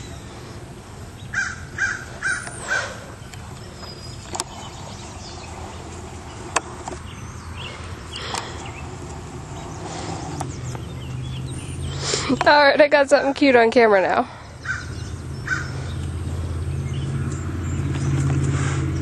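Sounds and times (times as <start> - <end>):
bird calling: 0.0 - 12.8, 14.2 - 19.0
sharp clicks: 8.2 - 9.2.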